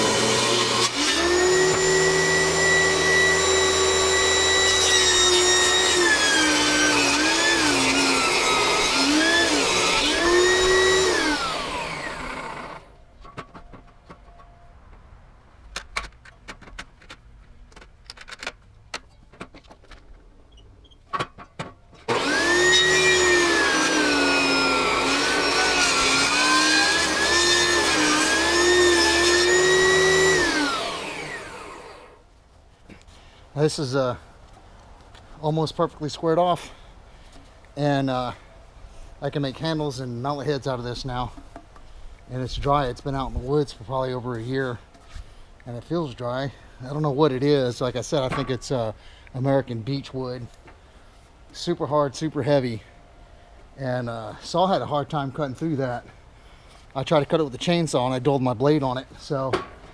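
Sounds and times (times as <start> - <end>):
table saw cutting wood: 0.0 - 12.9, 22.1 - 32.2.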